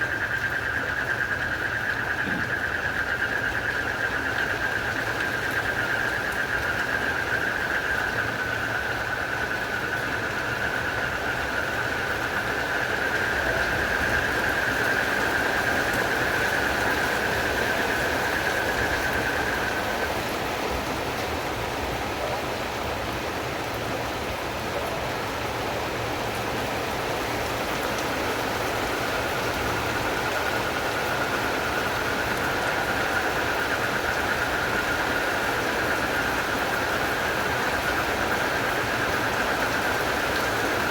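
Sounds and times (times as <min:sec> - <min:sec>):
frogs and crickets trilling: 0:00.0 - 0:40.9
steady rain: 0:00.0 - 0:40.9.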